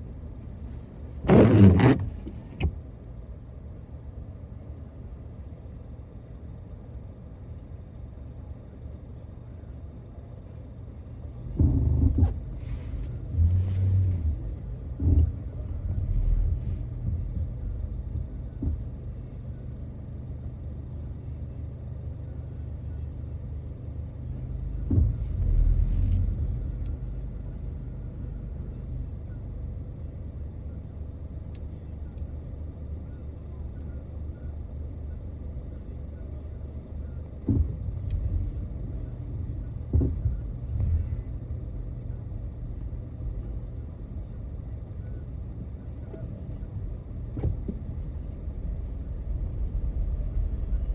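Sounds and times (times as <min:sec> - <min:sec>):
car engine and road noise: 0:00.0 - 0:50.9
car thumps: 0:01.2 - 0:02.8, 0:39.4 - 0:41.1, 0:47.2 - 0:50.9.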